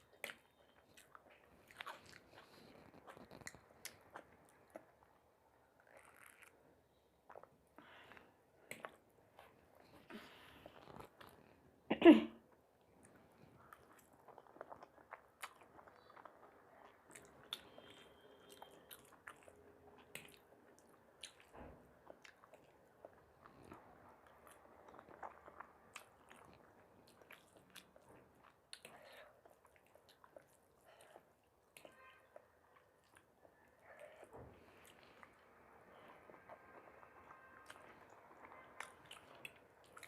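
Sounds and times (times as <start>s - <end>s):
person biting and chewing food: 0.1s - 5.2s, 5.8s - 6.6s, 8.1s - 11.4s, 13.6s - 31.2s.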